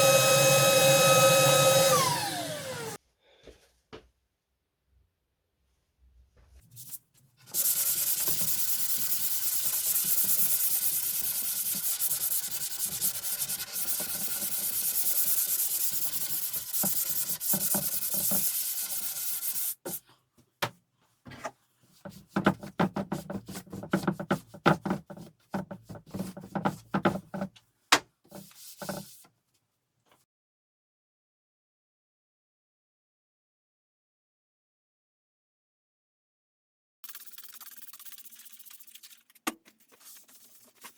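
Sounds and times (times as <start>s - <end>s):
wood being sanded: 0.0s - 3.0s, 7.6s - 19.9s
irregular rubbing strokes: 6.5s - 20.0s, 28.3s - 29.3s, 37.0s - 40.9s.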